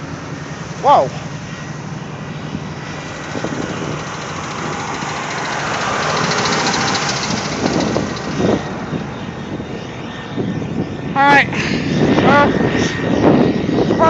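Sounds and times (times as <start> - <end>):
traffic passing on snowy road: 0.0 - 9.8.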